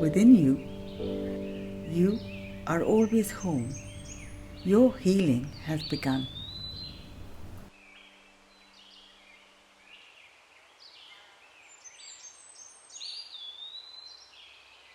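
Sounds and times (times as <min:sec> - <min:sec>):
birds chirping and whistling: 0:00.0 - 0:07.7
low steady hum: 0:00.0 - 0:07.7.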